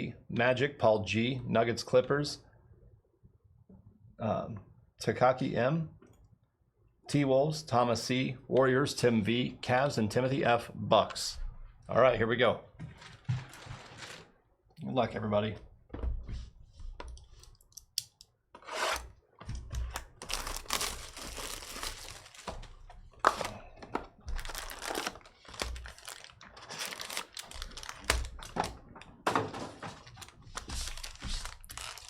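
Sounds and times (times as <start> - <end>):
wrappers tearing and crinkling: 19.9 - 23.6, 24.3 - 28.6, 30.0 - 32.0.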